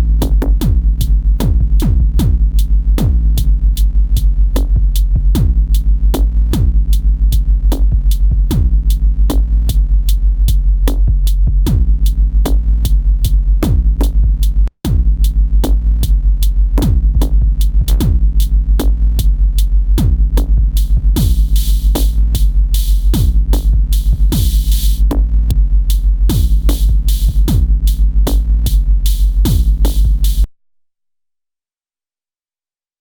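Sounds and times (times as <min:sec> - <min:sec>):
deep kick drums: 0:00.0 - 0:30.5
low bass tone: 0:00.0 - 0:30.5
hi-hat ticks: 0:09.7 - 0:12.6, 0:20.4 - 0:30.5.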